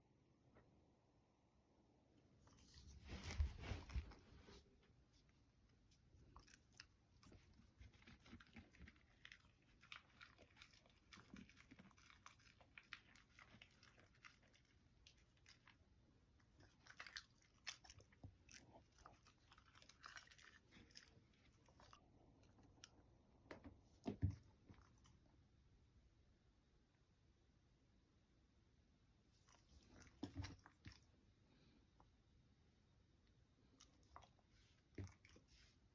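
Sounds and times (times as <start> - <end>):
dog chewing and crunching food: 5.2 - 23.1, 29.4 - 31.2, 33.6 - 35.8.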